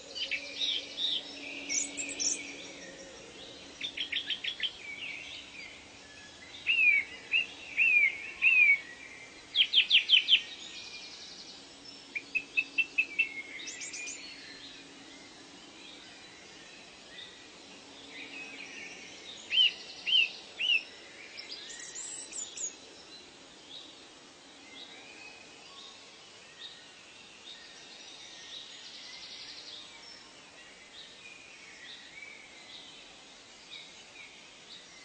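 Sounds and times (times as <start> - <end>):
background hiss: 0.0 - 35.0.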